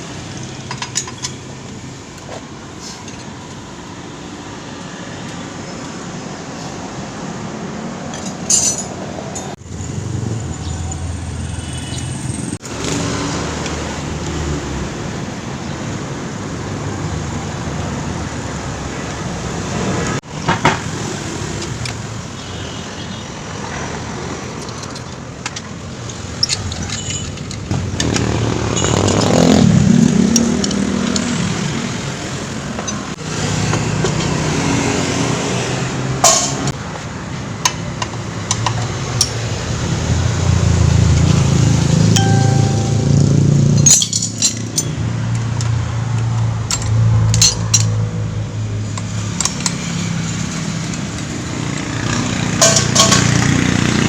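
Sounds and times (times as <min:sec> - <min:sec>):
traffic noise: 0:00.0 - 0:54.0
passing vehicle: 0:25.9 - 0:54.0.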